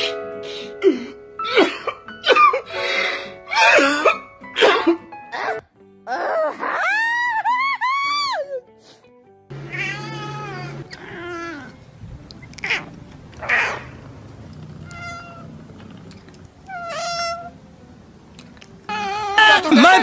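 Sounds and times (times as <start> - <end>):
cats meowing: 9.5 - 11.8, 12.4 - 17.6, 18.9 - 20.0.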